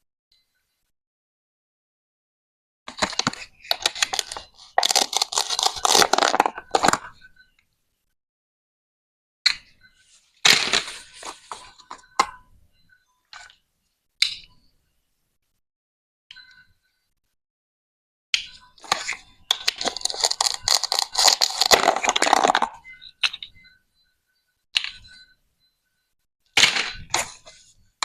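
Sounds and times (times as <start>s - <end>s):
toy knife cutting plastic: 3.1s - 7.0s, 18.8s - 22.8s.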